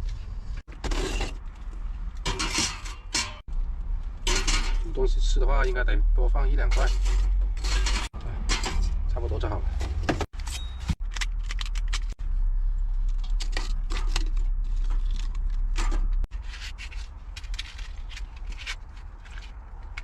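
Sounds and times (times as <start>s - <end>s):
charcoal scraping and clinking: 0.7s - 1.5s, 2.1s - 3.4s, 6.6s - 8.8s
steady low hum: 11.0s - 16.5s.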